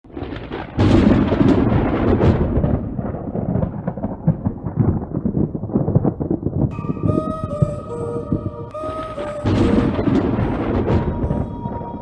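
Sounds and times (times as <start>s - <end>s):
thunder crack and rolling rumble: 0.1s - 7.6s, 9.5s - 12.0s.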